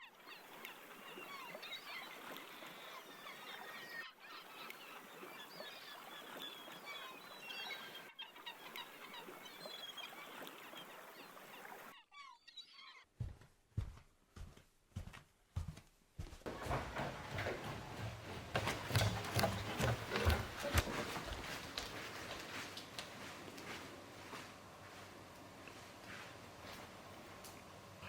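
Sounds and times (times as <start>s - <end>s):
small birds chirping: 0.0s - 13.1s.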